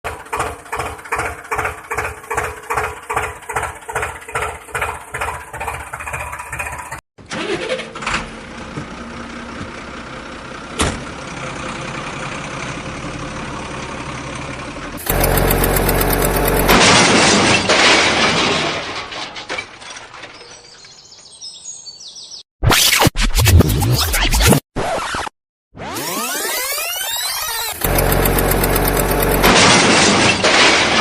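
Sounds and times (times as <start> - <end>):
engine chugging: 0.1 - 7.0, 9.0 - 16.8, 27.4 - 29.8
loud engine: 0.1 - 17.4, 25.9 - 30.6
engine running steadily: 8.5 - 16.9, 27.4 - 29.8.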